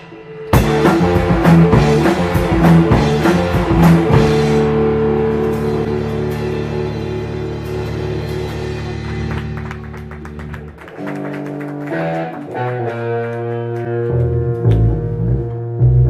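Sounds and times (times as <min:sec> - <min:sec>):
guitar picking single notes: 0:00.0 - 0:10.2, 0:11.0 - 0:16.0
ringing rock chord: 0:00.0 - 0:10.5.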